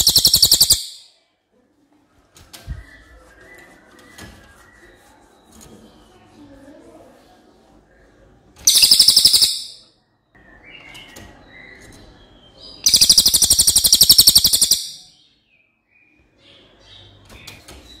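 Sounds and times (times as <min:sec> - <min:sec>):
bird trilling: 0:00.0 - 0:01.1, 0:08.7 - 0:09.8, 0:12.9 - 0:15.1
soft bird chirps: 0:00.0 - 0:01.2, 0:02.5 - 0:06.6, 0:07.9 - 0:18.0.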